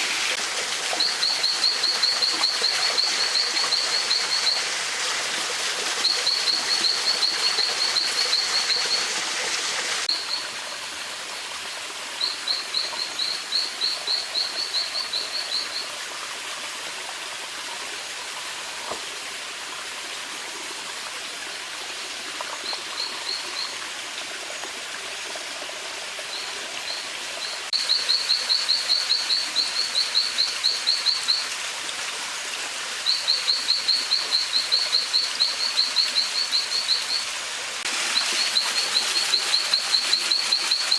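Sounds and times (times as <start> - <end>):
stream rushing: 0.0 - 2.3.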